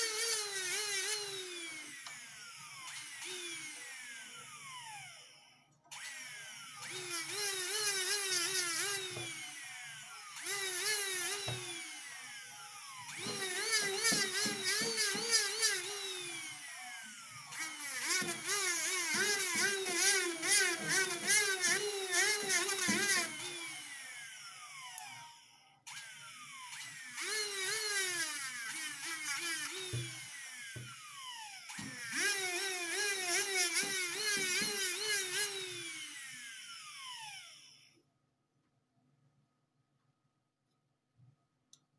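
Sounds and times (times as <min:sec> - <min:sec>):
rotary tool whining: 0:05.9 - 0:37.8.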